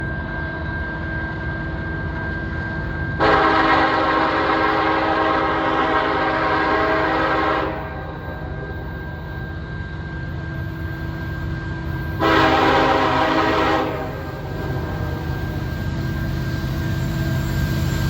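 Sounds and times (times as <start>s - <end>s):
train rumbling: 0.0s - 18.0s
locomotive horn chord: 3.2s - 8.7s, 12.2s - 15.2s
thin steady high tone: 6.0s - 18.0s.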